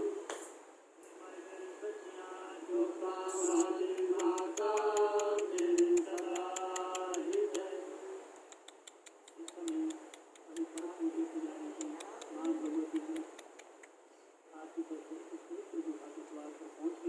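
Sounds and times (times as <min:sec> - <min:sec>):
faint high whine: 0:00.0 - 0:04.4
light fast clicks: 0:03.4 - 0:07.7, 0:08.3 - 0:10.9, 0:11.6 - 0:14.0.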